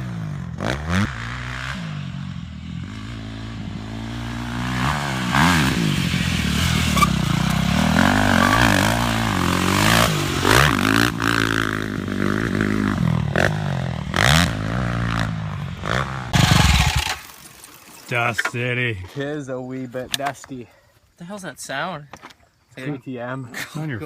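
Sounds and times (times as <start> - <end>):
dirt bike engine revving: 0.0 - 17.4.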